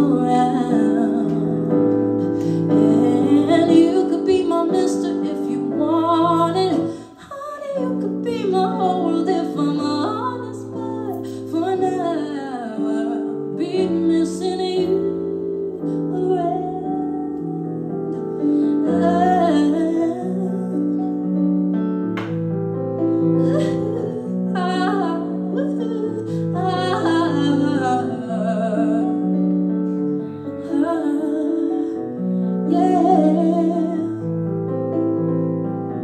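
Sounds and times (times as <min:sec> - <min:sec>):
keyboard chords: 0:13.0 - 0:36.0.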